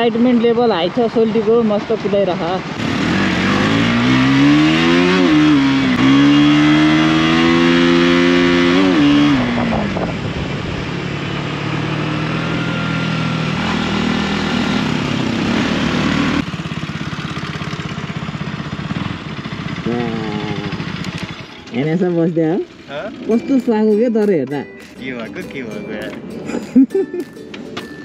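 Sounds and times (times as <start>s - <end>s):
motorcycle engine revving: 0.0s - 24.9s
rush of wind: 9.3s - 11.4s.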